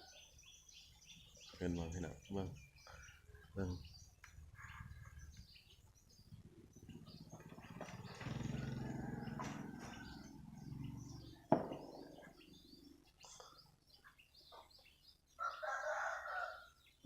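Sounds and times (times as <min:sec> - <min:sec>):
birds chirping: 0:00.0 - 0:17.0
sharp knock: 0:11.5 - 0:12.2.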